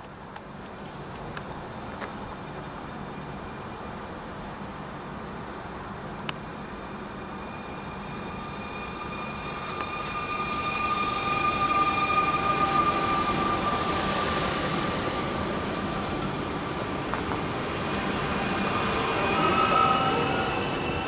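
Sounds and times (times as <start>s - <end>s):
electric train passing: 2.2s - 21.0s
wheels squealing on curved track: 7.5s - 15.2s, 17.8s - 21.0s.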